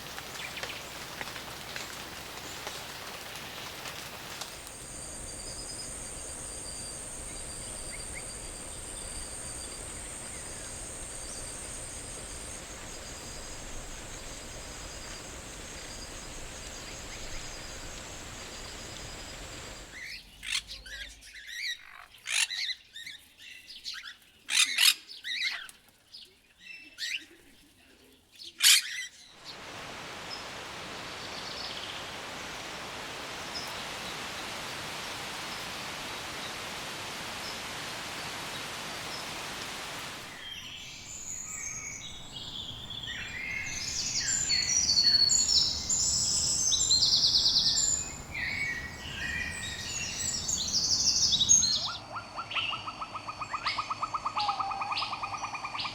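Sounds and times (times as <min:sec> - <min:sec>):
rain-like forest ambience: 0:00.0 - 0:24.5, 0:25.1 - 0:55.9
sharp bird calls: 0:40.2 - 0:53.7.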